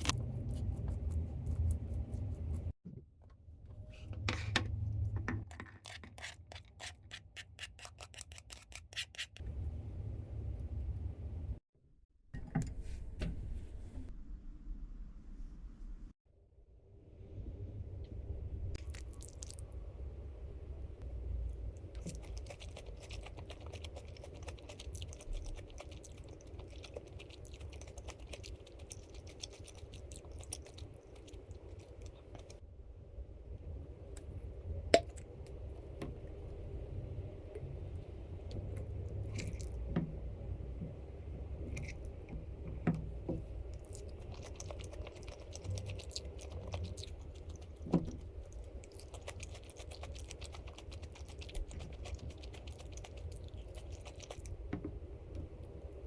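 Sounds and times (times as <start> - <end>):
person chewing food: 22.0 - 32.6, 39.1 - 39.8, 43.6 - 54.7.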